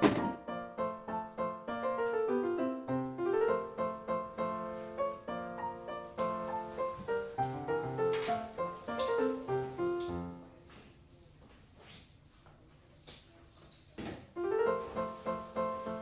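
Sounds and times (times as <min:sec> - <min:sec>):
gentle piano music: 0:00.0 - 0:10.6, 0:14.4 - 0:16.0.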